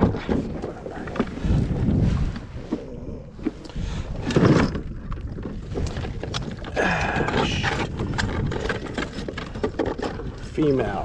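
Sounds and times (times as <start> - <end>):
wind rumble on microphone: 0.0 - 11.0
knocks and clicks of crabs: 3.4 - 10.4.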